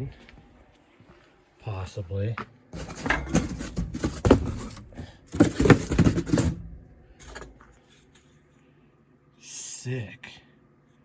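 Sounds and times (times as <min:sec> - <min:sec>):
clattering knocks: 0:02.8 - 0:07.6.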